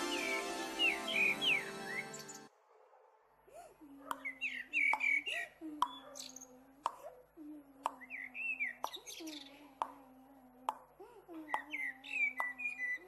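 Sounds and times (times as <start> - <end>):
birds chirping: 0.0 - 2.5, 4.1 - 6.6, 7.8 - 10.0, 11.4 - 13.0.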